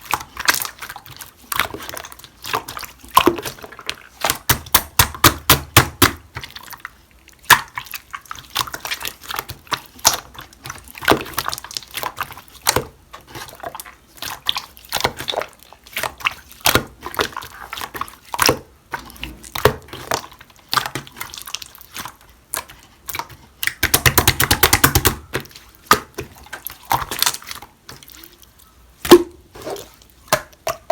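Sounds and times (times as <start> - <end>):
wet clicks and pops: 23.1 - 25.2.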